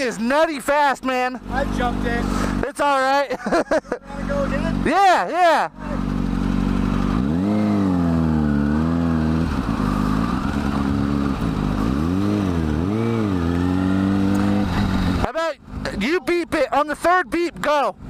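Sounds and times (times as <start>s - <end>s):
motorcycle engine revving: 1.3s - 2.6s, 4.0s - 16.1s.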